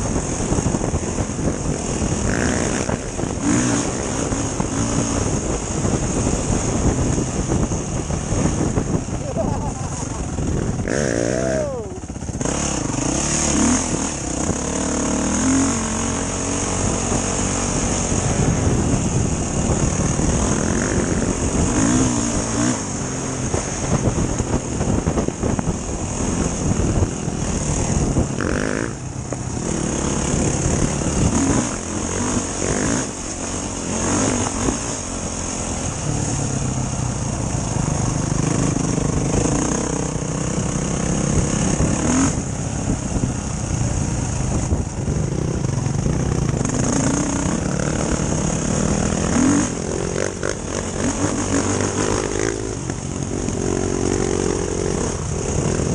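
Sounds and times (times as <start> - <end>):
dirt bike engine revving: 0.0 - 55.9
steady rushing noise: 0.0 - 55.9.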